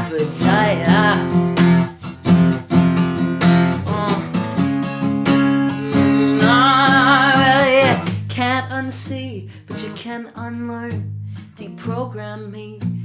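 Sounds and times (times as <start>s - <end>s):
man singing: 0.0s - 1.6s, 3.6s - 11.0s
acoustic guitar strumming: 0.0s - 13.0s.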